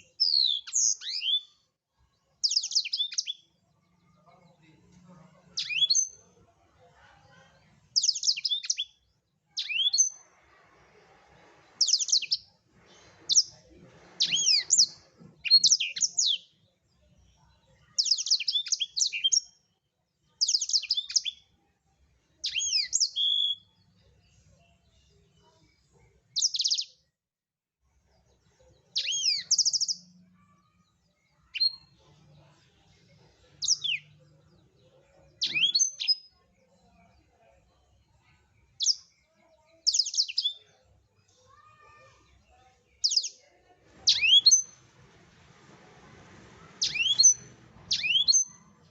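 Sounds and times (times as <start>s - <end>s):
songbird trilling: 44.1s - 44.7s, 46.8s - 48.6s.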